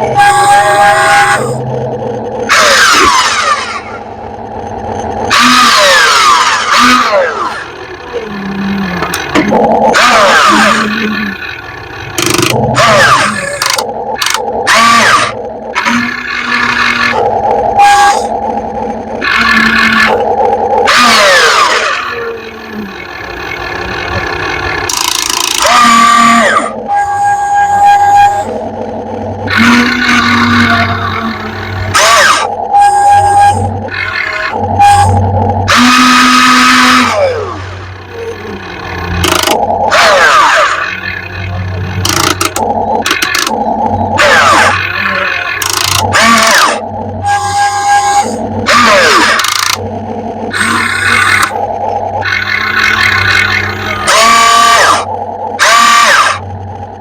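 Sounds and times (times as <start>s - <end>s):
toy excavator hydraulics whining: 12.2s - 18.4s, 24.8s - 28.6s, 29.4s - 41.1s, 42.0s - 49.8s, 50.5s - 51.6s, 52.2s - 56.5s.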